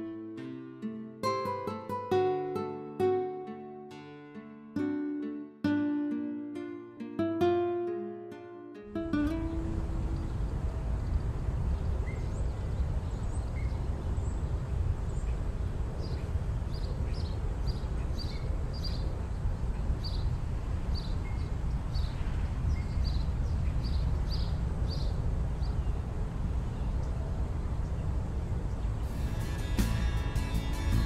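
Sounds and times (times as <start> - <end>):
low rumble of wind or traffic: 8.9 - 31.0.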